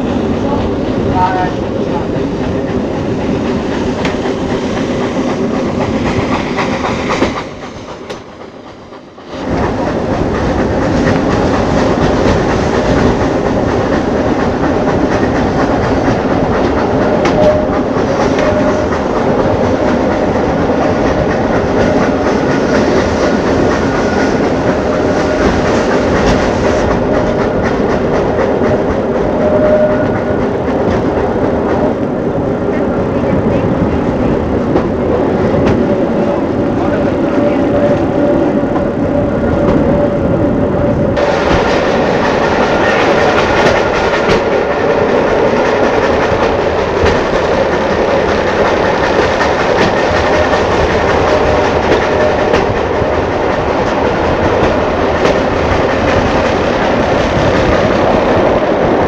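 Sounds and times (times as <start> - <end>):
train rolling noise: 0.0 - 59.0
wheels clacking over rail joints: 41.2 - 59.0.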